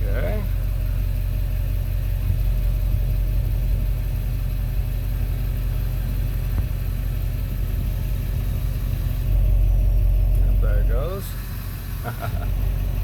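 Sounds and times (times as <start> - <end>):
engine rumble with pulsing: 0.0 - 13.0.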